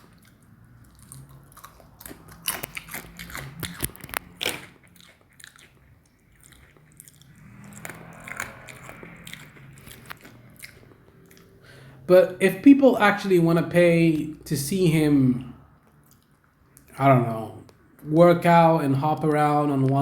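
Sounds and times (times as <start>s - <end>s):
person chewing crunchy food: 0.0s - 11.7s, 15.8s - 17.0s.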